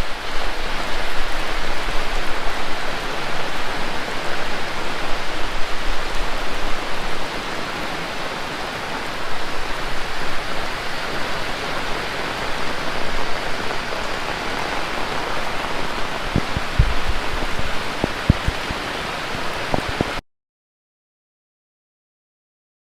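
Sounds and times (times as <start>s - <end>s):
heavy rain pouring: 0.0s - 20.2s.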